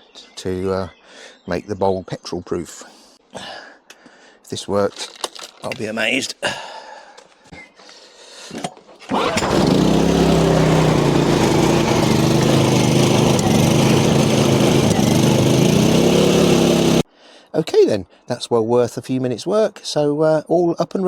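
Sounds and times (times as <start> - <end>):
generator engine starting and running: 9.1 - 17.0.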